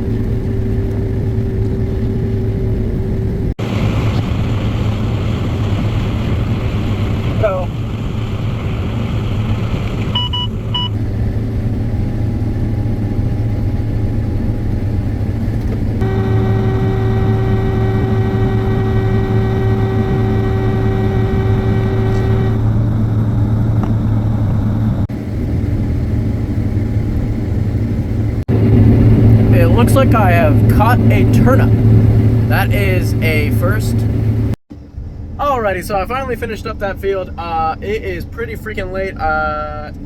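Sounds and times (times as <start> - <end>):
combine harvester drone: 0.0 - 40.0
high-pitched whine: 16.0 - 40.0.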